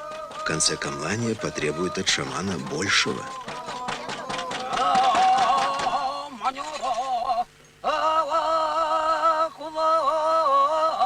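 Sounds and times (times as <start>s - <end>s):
man chanting: 0.0s - 8.1s.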